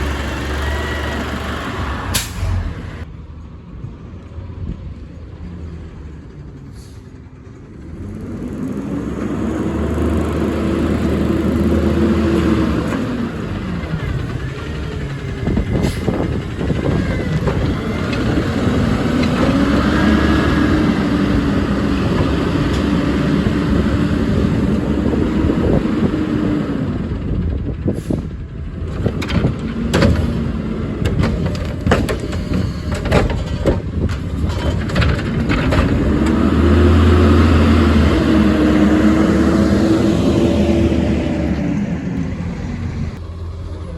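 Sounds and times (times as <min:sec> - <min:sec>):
truck engine revving: 0:00.0 - 0:03.1, 0:05.6 - 0:43.9
bangs and clanks of a cart: 0:27.7 - 0:38.5.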